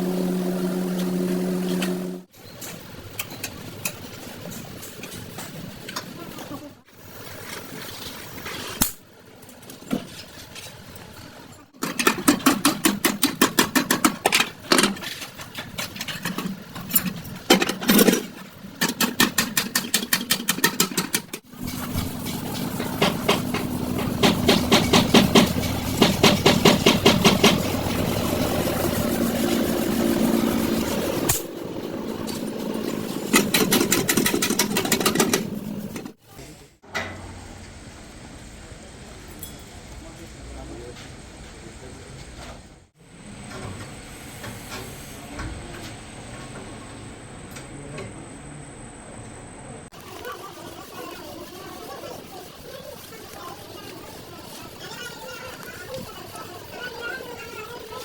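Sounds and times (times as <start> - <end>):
steady mechanical run: 0.0 - 2.3, 11.8 - 36.2
rapid metal tool strikes: 22.8 - 28.2.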